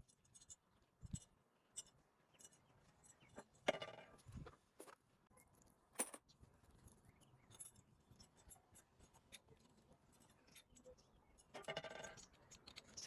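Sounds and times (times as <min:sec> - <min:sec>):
small objects clicking and scraping: 0:07.3 - 0:13.0.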